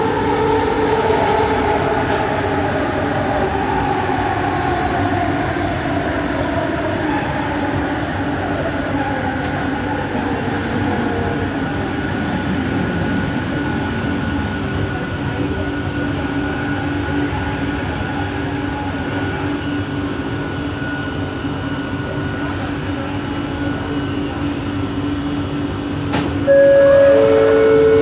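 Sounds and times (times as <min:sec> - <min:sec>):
train wheels rumbling: 0:00.0 - 0:17.2.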